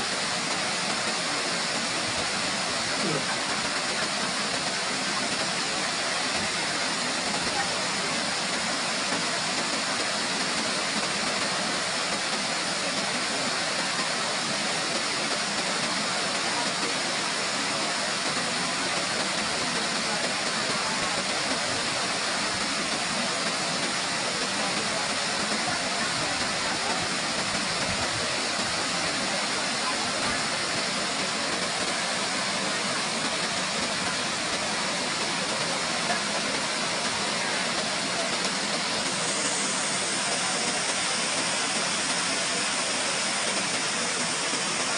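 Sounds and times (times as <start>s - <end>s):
waterfall rushing: 0.0s - 44.9s.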